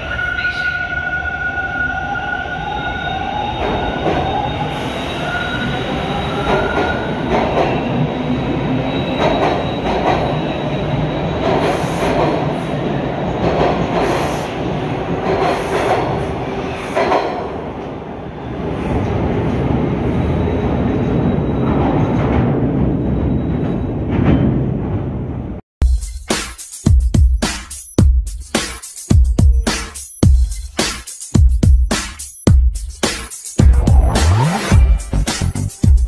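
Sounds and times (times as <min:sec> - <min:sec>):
steel wheels squealing: 0:00.0 - 0:12.2, 0:20.0 - 0:24.5
subway train rumble: 0:00.0 - 0:25.6.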